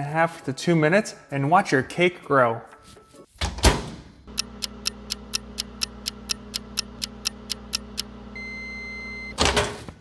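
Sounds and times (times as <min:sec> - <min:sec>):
microwave humming: 0:03.4 - 0:10.0
microwave ticking: 0:04.2 - 0:09.6.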